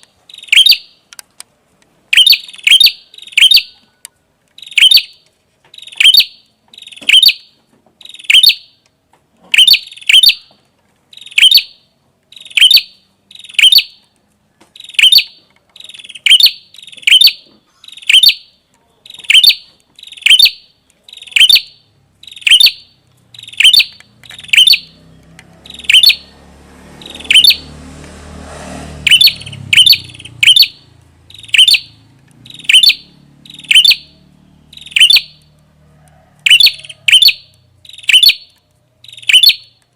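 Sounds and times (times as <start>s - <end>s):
songbird chip notes: 29.1s - 35.4s.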